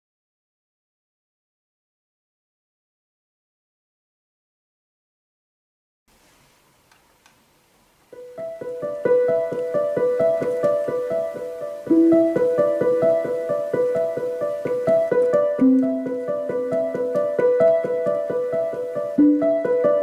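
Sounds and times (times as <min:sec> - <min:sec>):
solo piano piece: 0:07.8 - 0:20.0.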